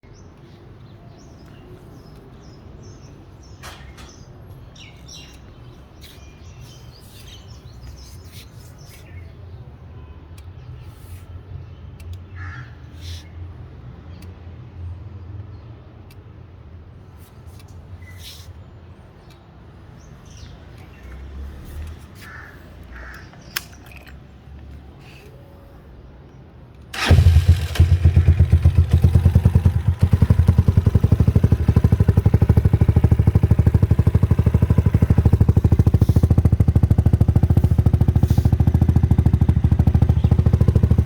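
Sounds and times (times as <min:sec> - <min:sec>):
birds chirping: 0:00.0 - 0:13.4, 0:17.6 - 0:26.4, 0:27.0 - 0:41.0
crows cawing: 0:12.4 - 0:12.8, 0:22.2 - 0:23.4
motorcycle idling: 0:26.9 - 0:41.0.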